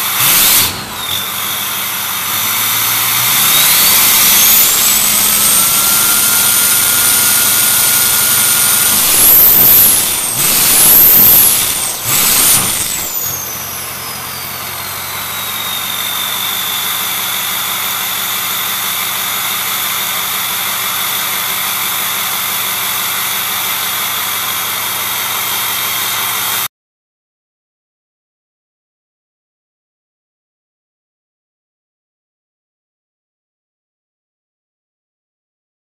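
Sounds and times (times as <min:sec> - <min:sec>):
turbo whistle: 0:00.0 - 0:21.3
diesel truck engine idling and revving: 0:00.0 - 0:26.7.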